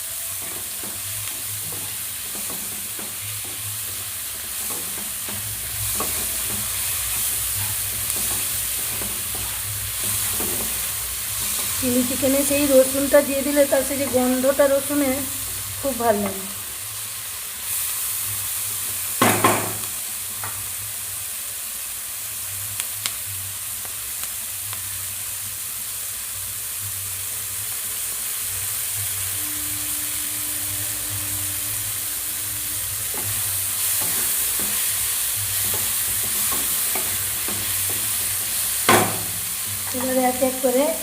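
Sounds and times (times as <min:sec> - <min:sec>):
vegetables sizzling in oil: 0:00.0 - 0:41.0
spatula knocking against pan: 0:38.9 - 0:39.4.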